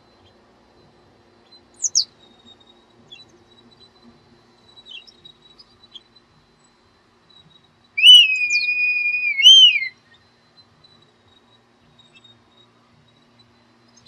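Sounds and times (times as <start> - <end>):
birds chirping: 1.4 - 9.9.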